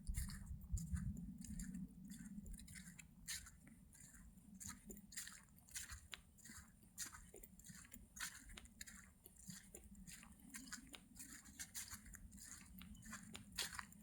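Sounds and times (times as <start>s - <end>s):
footsteps crunching dry leaves: 9.4s - 14.0s.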